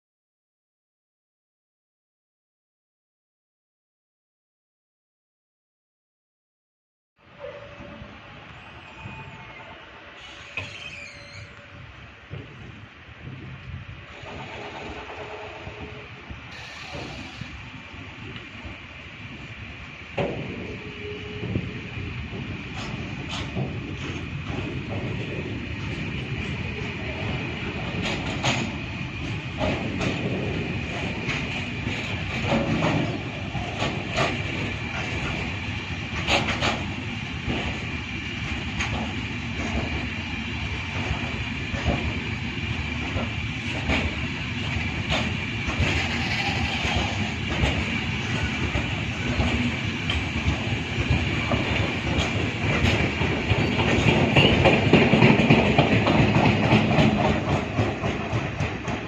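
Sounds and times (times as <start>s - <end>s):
low train rumble: 7.2s - 59.0s
train wheels clicking over rails: 12.2s - 15.9s, 16.5s - 18.8s, 19.4s - 59.0s.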